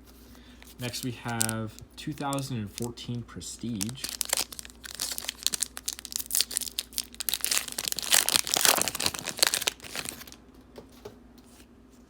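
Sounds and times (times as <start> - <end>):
wrapper tearing and crinkling: 0.6 - 2.9, 3.6 - 10.4.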